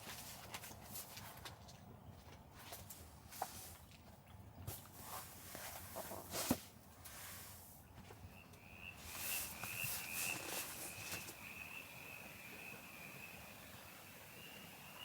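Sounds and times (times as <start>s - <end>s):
rustling: 9.0s - 11.4s.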